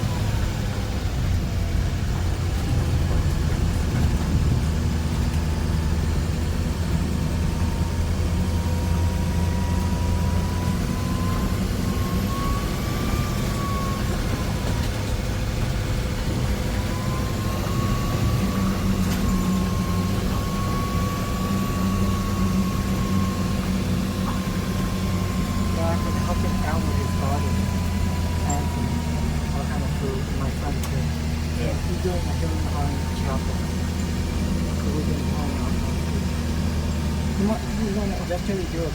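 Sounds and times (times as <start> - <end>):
bus engine humming: 0.0 - 38.9.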